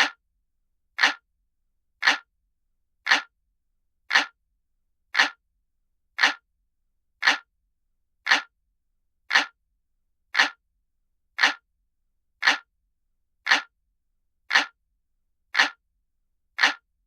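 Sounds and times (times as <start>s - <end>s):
clock ticking: 0.0s - 0.2s, 1.0s - 1.2s, 2.0s - 2.3s, 3.1s - 3.3s, 4.1s - 4.4s, 5.2s - 5.4s, 6.2s - 6.4s, 7.2s - 7.5s, 8.3s - 8.5s, 9.3s - 9.6s, 10.4s - 10.6s, 11.4s - 11.6s, 12.4s - 12.7s, 13.5s - 13.7s, 14.5s - 14.8s, 15.5s - 15.8s, 16.6s - 16.8s.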